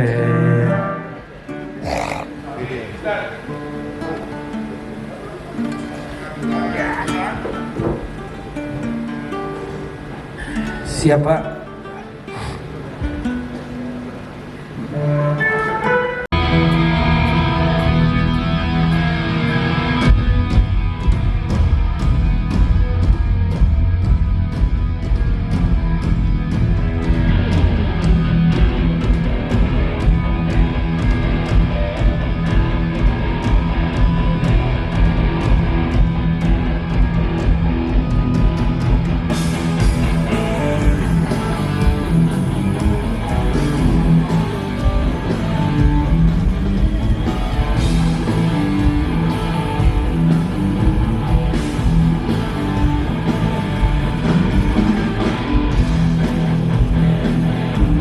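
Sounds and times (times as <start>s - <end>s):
electric guitar: 0.0s - 58.0s
rock band playing: 12.6s - 58.0s.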